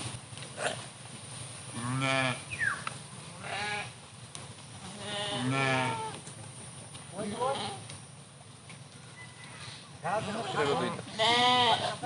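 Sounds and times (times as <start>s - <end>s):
sheep bleating: 1.8s - 2.4s, 3.4s - 4.0s, 4.8s - 6.2s, 7.3s - 7.8s, 10.0s - 12.0s.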